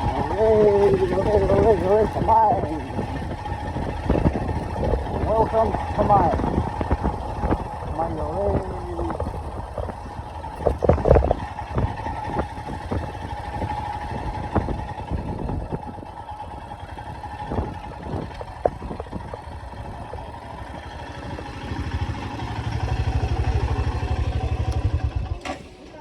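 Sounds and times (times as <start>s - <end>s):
knocks and rattles: 0.0s - 15.2s
motorcycle engine running: 0.0s - 26.0s.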